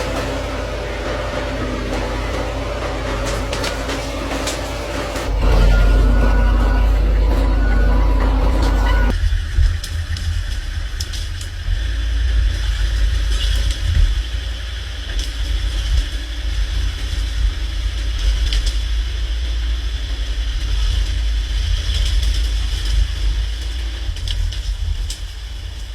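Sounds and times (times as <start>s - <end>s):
engine running: 0.0s - 9.2s.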